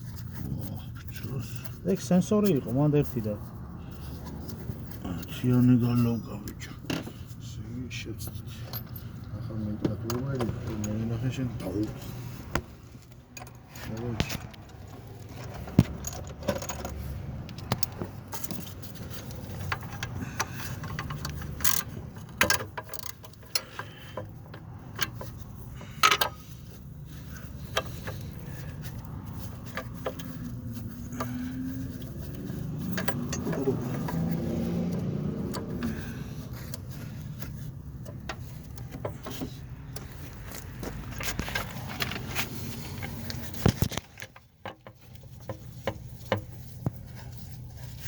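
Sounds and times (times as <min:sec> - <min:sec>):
tools and metal parts clinking: 0:08.2 - 0:09.3, 0:13.1 - 0:48.0.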